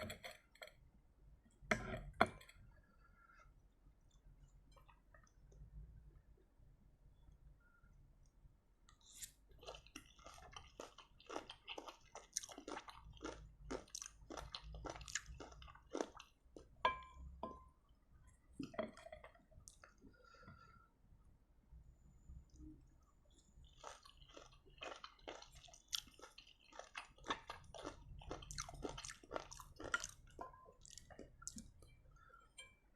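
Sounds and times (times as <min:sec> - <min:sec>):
crunchy chewing: 0:09.0 - 0:16.8, 0:23.6 - 0:31.7.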